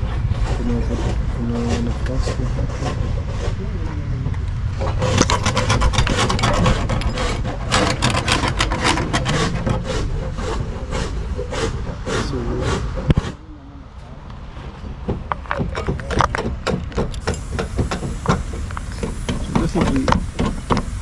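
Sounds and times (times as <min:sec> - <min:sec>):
rapid irregular scraping and rubbing: 0:00.0 - 0:13.4.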